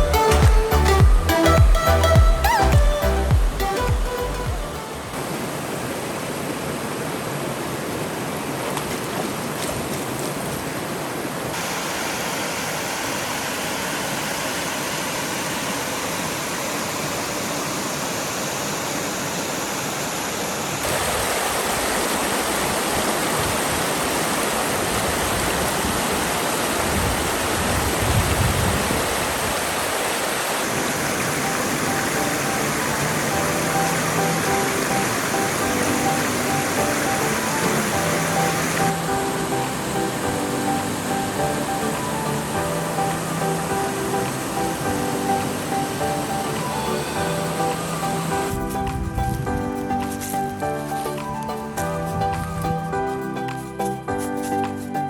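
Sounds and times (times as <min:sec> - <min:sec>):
water rushing over cascade: 0:00.0 - 0:52.9.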